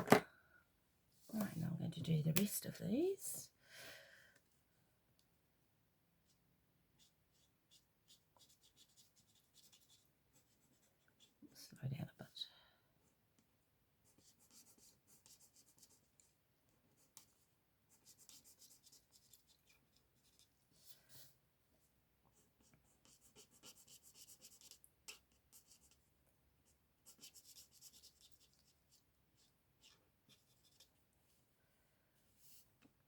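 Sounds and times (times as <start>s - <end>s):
marker scratching on cardstock: 7.0s - 11.3s, 22.6s - 26.0s.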